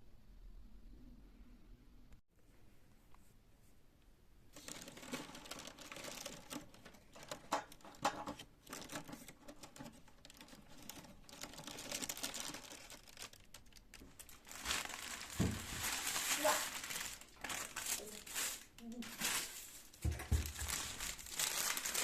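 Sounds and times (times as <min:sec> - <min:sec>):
small clicks and knocks: 0:04.6 - 0:14.4
packaging crinkling: 0:04.6 - 0:22.0.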